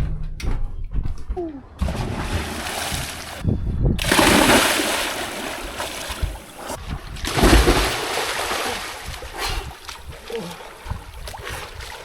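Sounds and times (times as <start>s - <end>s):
heavy low thump: 0.0s - 7.9s
water splashing from swimmers: 4.0s - 12.0s.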